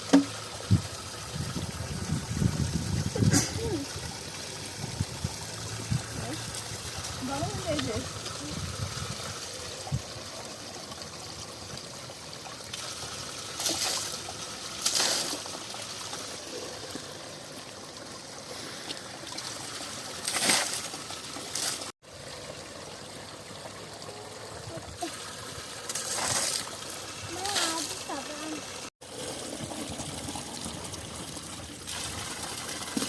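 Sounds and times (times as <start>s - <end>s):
spring water trickling: 0.0s - 33.0s
water splashes: 0.0s - 33.0s.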